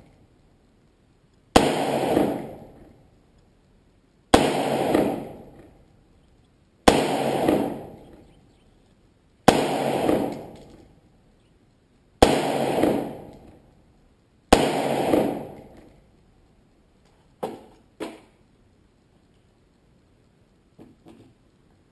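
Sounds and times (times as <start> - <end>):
rifle shots with echo: 1.5 - 2.9, 4.3 - 5.7, 6.8 - 8.5, 9.5 - 10.9, 12.2 - 13.6, 14.5 - 16.0.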